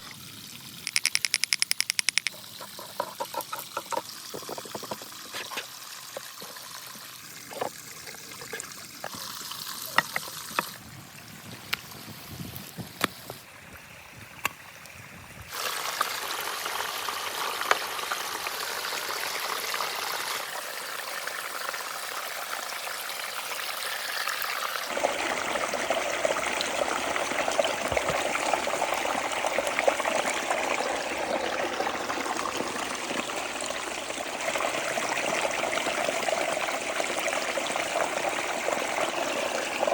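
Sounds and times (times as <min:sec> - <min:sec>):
sharp clicks and knocks: 0:00.9 - 0:05.1
water rushing: 0:15.5 - 0:39.9.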